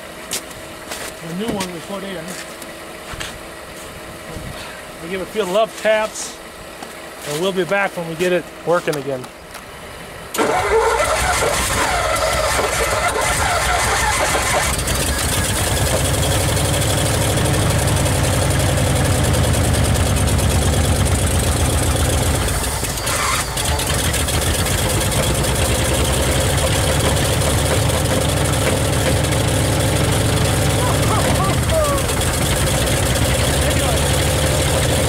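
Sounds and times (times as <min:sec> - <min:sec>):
car engine running: 0:10.4 - 0:35.0.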